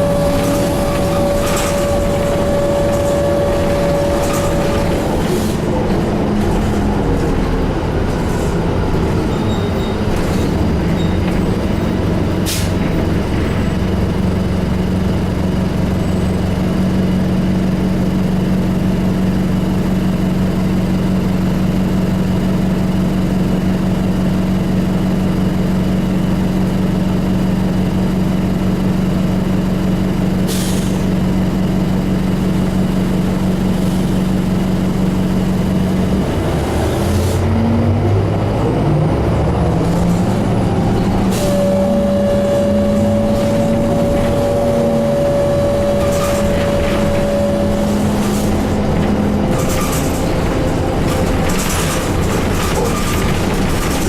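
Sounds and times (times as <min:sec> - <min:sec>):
bus engine running: 0:00.0 - 0:54.0
high steady whine: 0:40.8 - 0:53.6
sharp clicks and rattles: 0:48.2 - 0:54.0.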